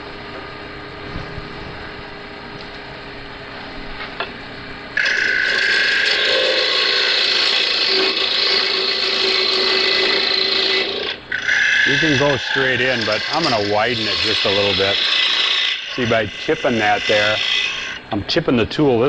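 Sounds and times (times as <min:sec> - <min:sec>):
wood lathe spinning: 0:05.0 - 0:18.1
parting tool cutting wood: 0:05.0 - 0:18.2.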